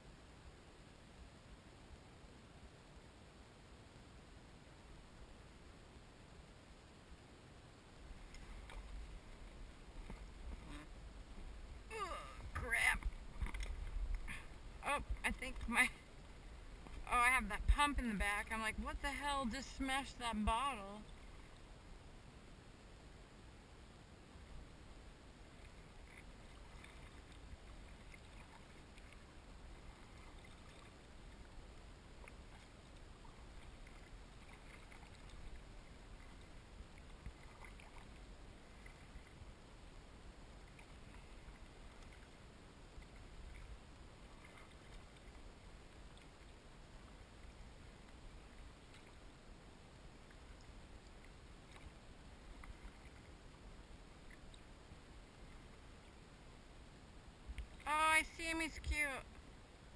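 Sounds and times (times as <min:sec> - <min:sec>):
low steady rumble: 0:00.0 - 0:59.9
small water splashes and drips: 0:25.5 - 0:39.7, 0:40.5 - 0:49.4, 0:50.2 - 0:53.6, 0:54.2 - 0:54.8.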